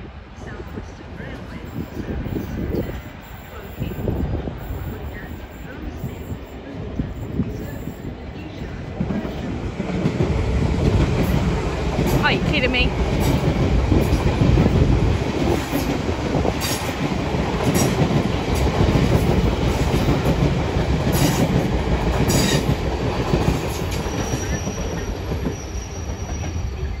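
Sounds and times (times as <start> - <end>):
train wheels rumbling on rails: 0.0 - 27.0
faint thin squeal: 24.0 - 27.0.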